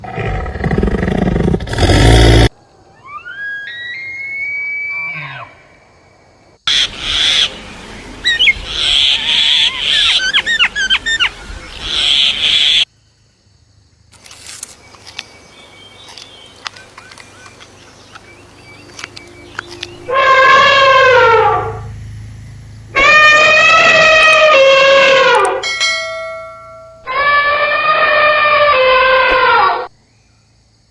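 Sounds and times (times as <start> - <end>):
loud falling animal call: 2.0 - 5.6, 8.2 - 12.8, 20.1 - 21.8, 23.0 - 25.6, 27.0 - 29.9
whistled animal call: 2.9 - 5.6, 8.2 - 12.8.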